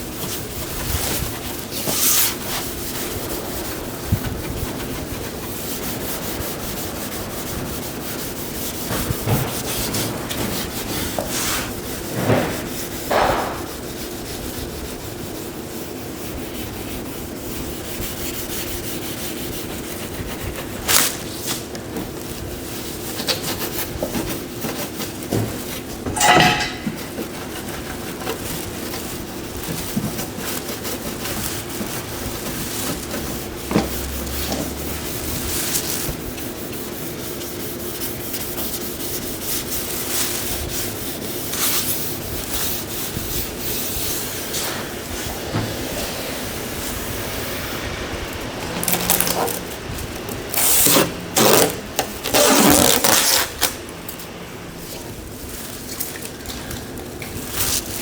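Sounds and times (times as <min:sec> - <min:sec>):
scraping rubbing on car panel: 0:00.0 - 0:47.3, 0:48.6 - 0:53.7.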